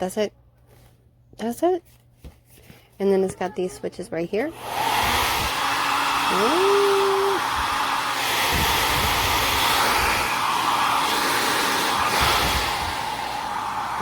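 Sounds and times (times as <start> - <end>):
hair dryer running: 4.5 - 14.0.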